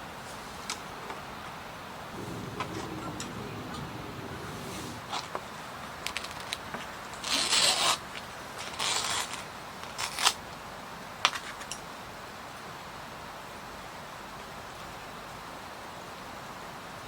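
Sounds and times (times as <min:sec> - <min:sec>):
rain hissing: 0:00.2 - 0:06.7.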